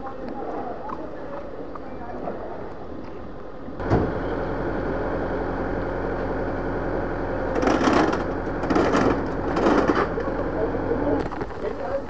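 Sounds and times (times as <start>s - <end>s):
engine idling: 3.8s - 12.0s.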